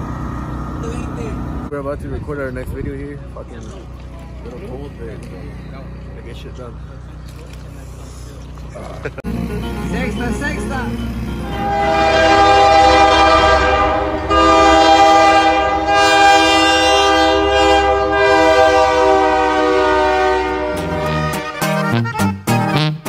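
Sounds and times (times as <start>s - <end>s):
low rumble of passing train: 0.0s - 21.5s
train horn multi-tone chord: 9.4s - 22.2s.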